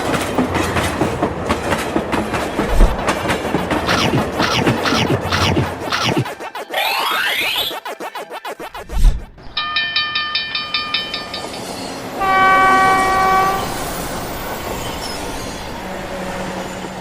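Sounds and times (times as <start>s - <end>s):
train rumbling: 0.0s - 6.4s, 9.2s - 17.0s
cartoon train chugging: 2.6s - 8.9s
train horn blast: 12.2s - 13.8s.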